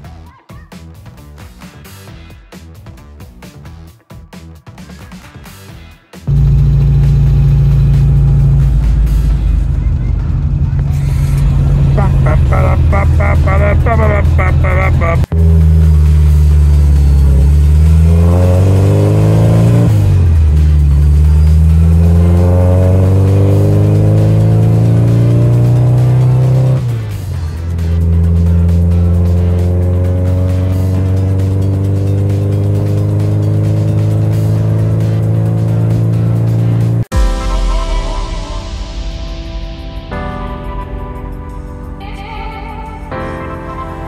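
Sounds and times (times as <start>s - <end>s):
car engine accelerating: 6.3s - 37.1s.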